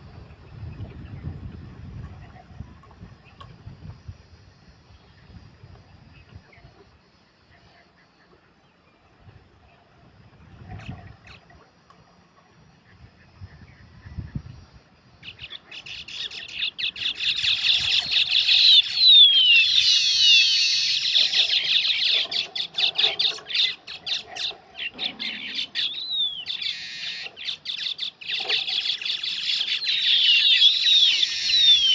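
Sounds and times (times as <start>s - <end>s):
weaver birds chattering: 15.2s - 31.9s.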